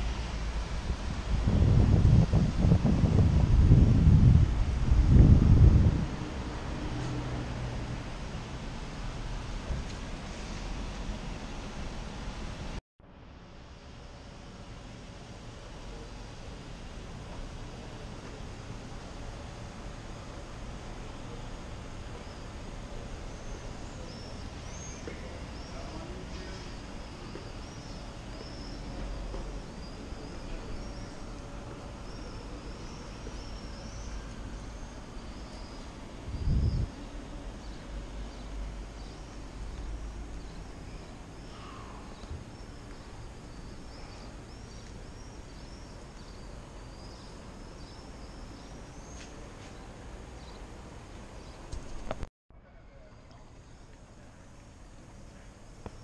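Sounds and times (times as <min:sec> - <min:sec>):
low steady rumble: 0:00.0 - 0:49.0
small birds chirping: 0:23.3 - 0:50.6.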